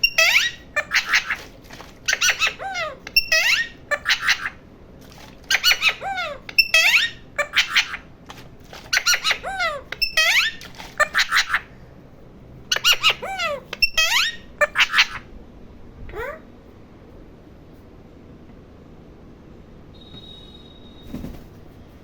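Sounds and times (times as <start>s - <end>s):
parrot squawking and whistling: 0.0s - 1.5s, 2.1s - 4.6s, 5.5s - 8.1s, 8.9s - 11.7s, 12.7s - 15.3s.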